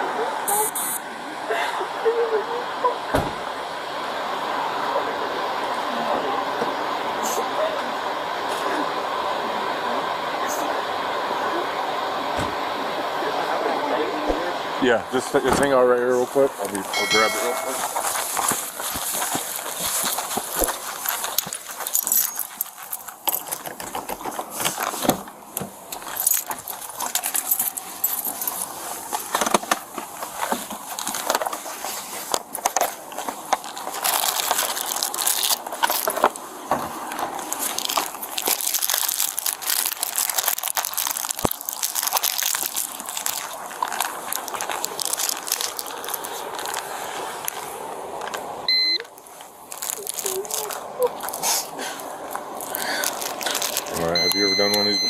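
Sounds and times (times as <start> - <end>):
microphone handling rustle: 16.9 - 34.1.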